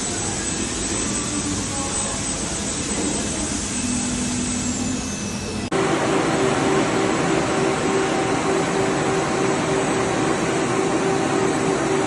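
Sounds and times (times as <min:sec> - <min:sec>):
machine running: 0:00.0 - 0:12.0.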